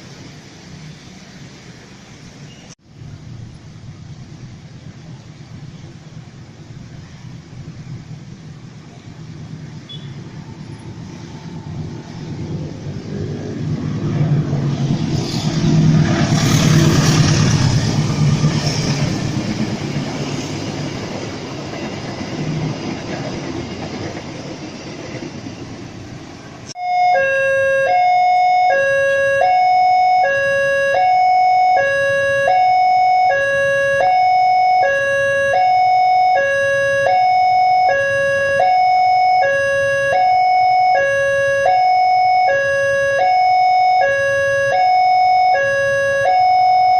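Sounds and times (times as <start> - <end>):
passenger train passing: 0.0 - 46.4
two-tone electronic alarm: 26.8 - 46.9.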